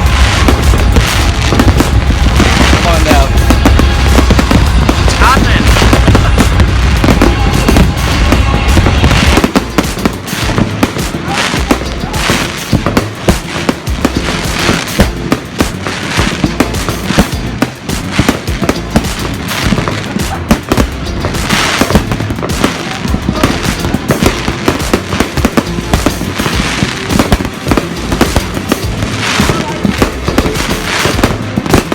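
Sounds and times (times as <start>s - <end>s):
deep rumble: 0.0s - 17.8s
fireworks bangs and crackles: 0.0s - 31.9s.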